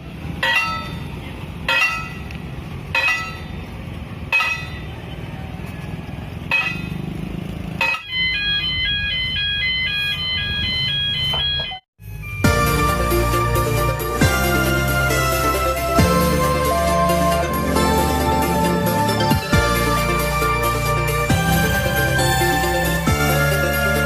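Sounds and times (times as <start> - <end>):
fast electronic tune: 12.1 - 24.0.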